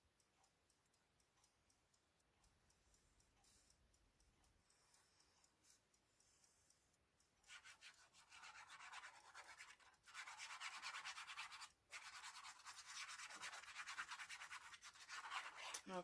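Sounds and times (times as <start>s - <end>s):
scratchy rubbing on paper: 7.5s - 15.9s.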